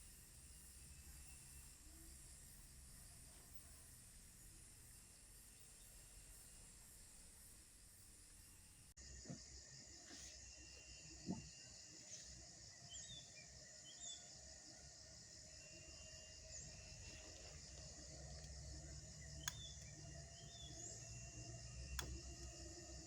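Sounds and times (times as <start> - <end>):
pulsing insect drone: 0.0 - 23.0
sharp clicks: 17.7 - 20.6, 21.8 - 22.6.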